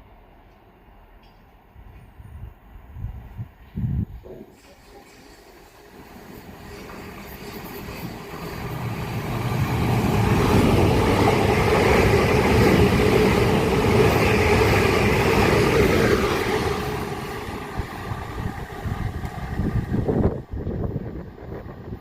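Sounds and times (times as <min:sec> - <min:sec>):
wheel-and-rail noise: 0:04.3 - 0:22.0
electric train passing: 0:04.6 - 0:22.0.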